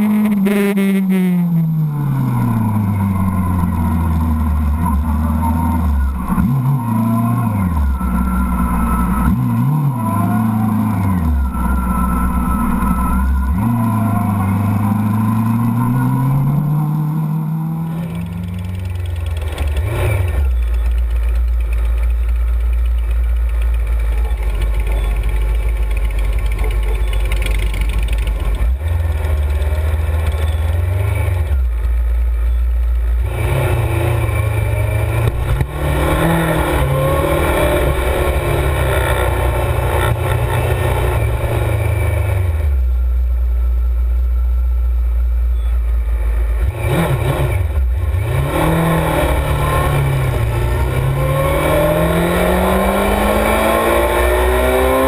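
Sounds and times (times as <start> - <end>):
motorcycle engine revving: 0.0 - 44.2, 45.9 - 55.0.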